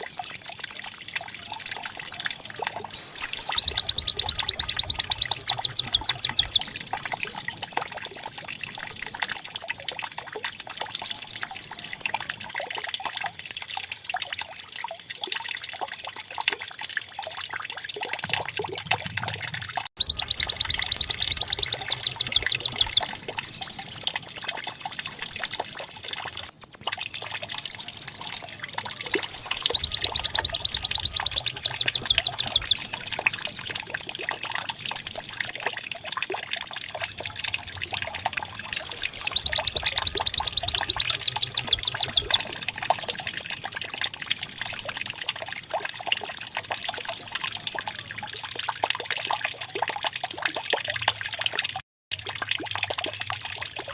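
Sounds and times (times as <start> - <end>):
bird singing trills: 0.0 - 12.1, 20.0 - 28.6, 29.2 - 47.9.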